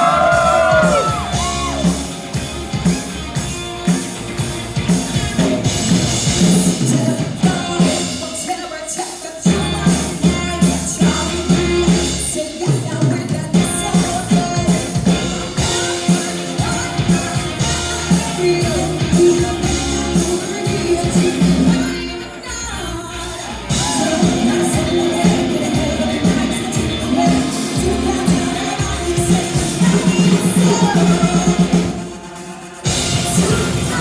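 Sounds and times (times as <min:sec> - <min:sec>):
drum kit beat: 0:00.0 - 0:34.0
rock band playing: 0:00.0 - 0:34.0
woman singing: 0:06.6 - 0:32.2, 0:33.0 - 0:34.0.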